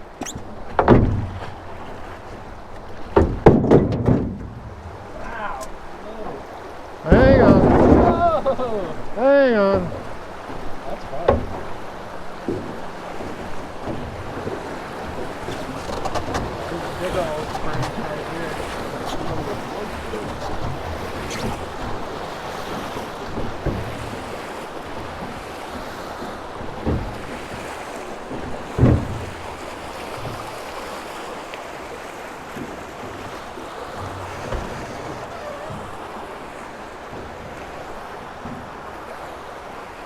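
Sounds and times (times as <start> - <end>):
river water rushing: 0.0 - 3.7, 4.3 - 40.0
short knocks: 0.0 - 25.5, 26.6 - 30.5, 32.5 - 37.6
wind buffeting microphone: 1.0 - 27.7.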